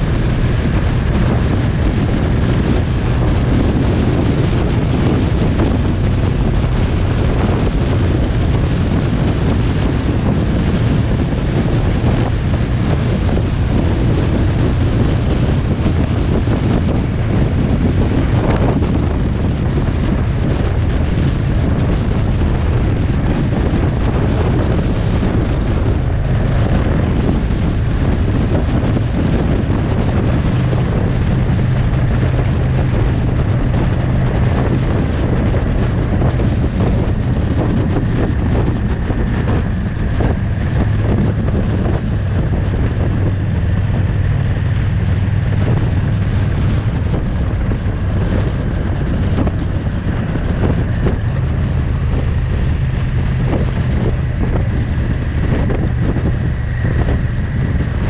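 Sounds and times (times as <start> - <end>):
motorcycle engine drone: 0.0 - 58.0
wind rushing over microphone: 0.0 - 58.0.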